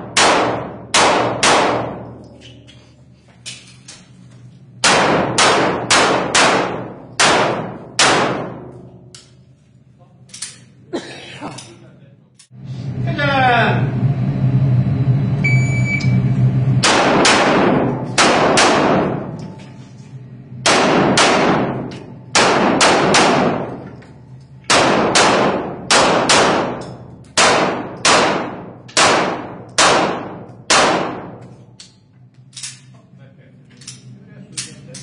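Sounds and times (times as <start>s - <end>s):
pistol shots echoing: 0.0s - 2.2s, 4.8s - 8.9s, 16.8s - 19.4s, 20.6s - 23.8s, 24.7s - 31.4s
shot timer beep: 15.4s - 16.3s.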